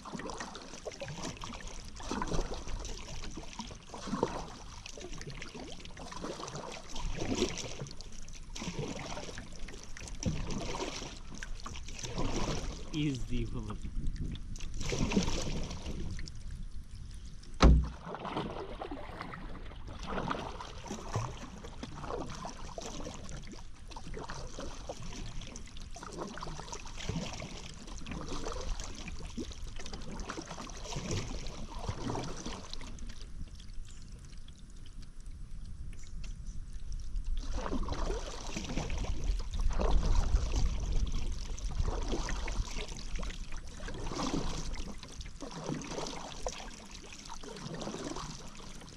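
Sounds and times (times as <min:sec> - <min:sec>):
paddle splashing in water: 0:00.0 - 0:34.7, 0:35.9 - 0:48.9
sharp knock: 0:17.6 - 0:17.9.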